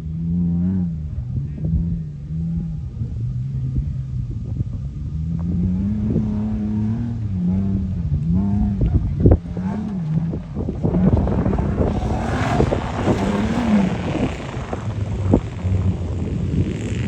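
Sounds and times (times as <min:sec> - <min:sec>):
truck engine revving: 0:04.5 - 0:17.0.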